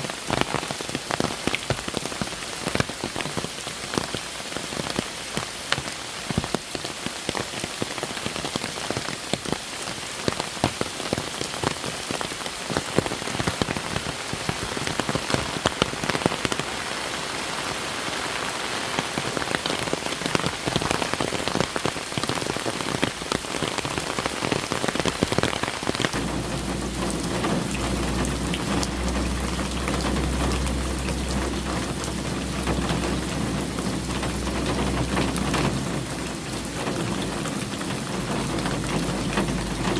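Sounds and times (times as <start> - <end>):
rain drops hitting a surface: 0.0 - 39.9
steady low rumble: 26.2 - 39.9.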